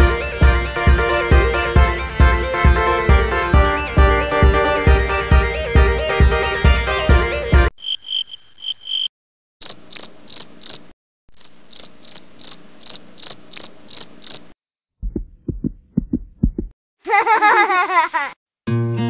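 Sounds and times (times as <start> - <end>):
insect chirping: 7.8 - 14.6
low thumps: 15.0 - 16.7.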